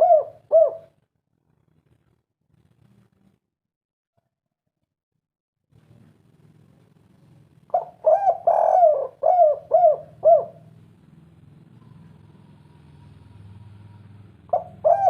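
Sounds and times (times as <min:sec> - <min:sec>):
dove cooing: 0:00.0 - 0:01.0, 0:07.7 - 0:11.0, 0:11.7 - 0:15.0.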